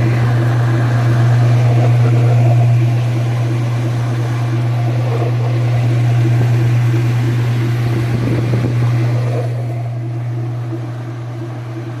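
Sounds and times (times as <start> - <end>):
washing machine spinning: 0.0 - 12.0.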